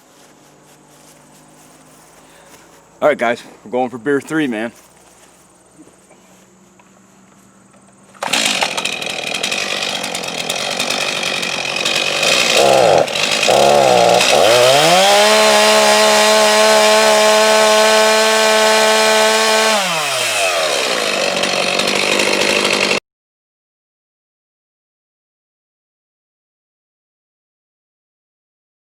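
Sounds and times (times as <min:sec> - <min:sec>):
chainsaw engine revving and idling: 0:07.7 - 0:23.0.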